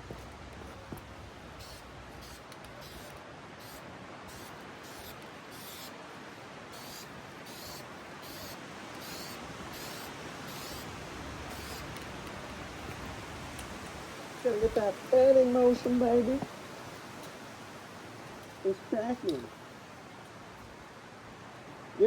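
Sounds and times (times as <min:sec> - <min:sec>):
steady background hiss: 0:00.0 - 0:22.0
aerosol can spraying hisses: 0:06.8 - 0:10.9.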